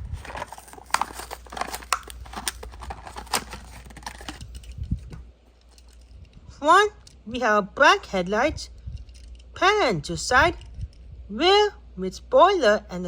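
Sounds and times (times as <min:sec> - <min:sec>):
cardboard tearing: 0:00.0 - 0:04.4
plastic blister crinkling: 0:00.0 - 0:06.2.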